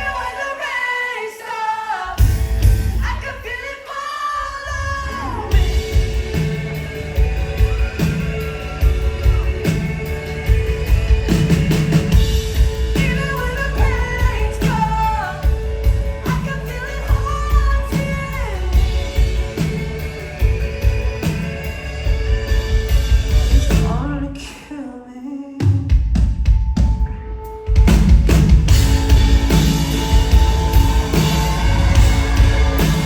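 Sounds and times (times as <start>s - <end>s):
drum beat: 2.2s - 3.2s, 5.5s - 24.0s, 27.8s - 33.0s
bass: 2.2s - 3.6s, 4.6s - 24.5s, 25.9s - 33.0s
gliding melody: 28.7s - 33.0s.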